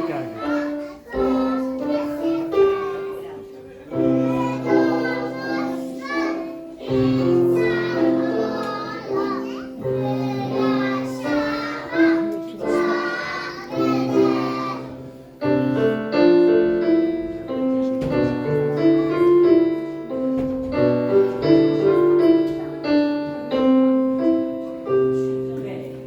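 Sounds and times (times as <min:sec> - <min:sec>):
children's choir singing: 0:00.0 - 0:25.3.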